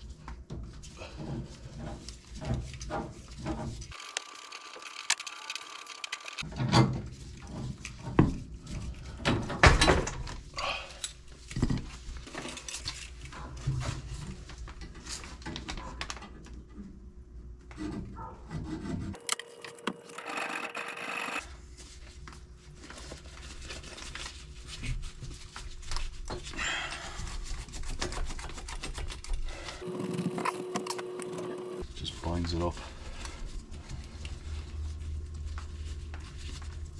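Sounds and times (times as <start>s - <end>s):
scraping and rubbing: 29.8s - 31.8s.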